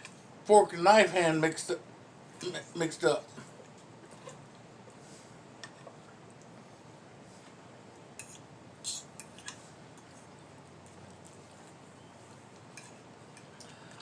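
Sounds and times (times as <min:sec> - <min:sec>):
faint room hum: 0:00.0 - 0:14.0
fork and knife clinking on plate: 0:12.7 - 0:13.5.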